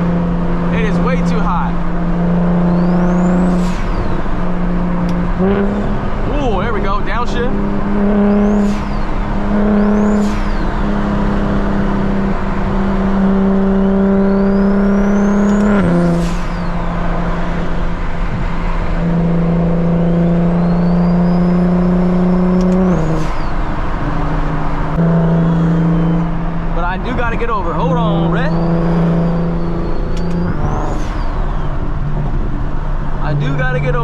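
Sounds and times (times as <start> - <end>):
car engine accelerating: 0.0 - 34.0
turbo whistle: 2.6 - 4.2, 8.1 - 11.2, 25.0 - 26.4, 28.3 - 31.9.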